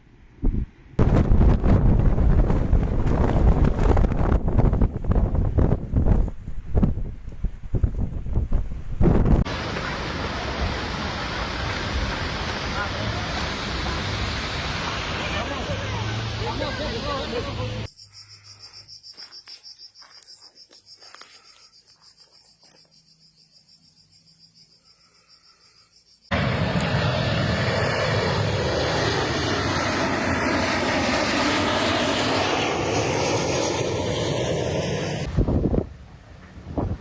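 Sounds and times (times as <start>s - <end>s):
aircraft passing low overhead: 8.8s - 17.9s, 26.3s - 37.0s
insects chirring: 17.8s - 26.6s.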